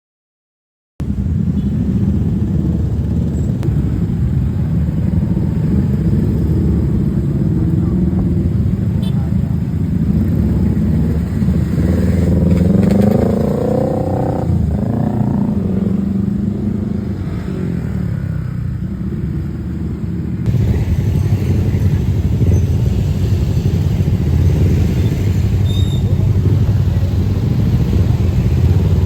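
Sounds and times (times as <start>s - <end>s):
motorcycle engines rumbling: 1.0s - 29.0s
engine revving: 9.9s - 17.9s.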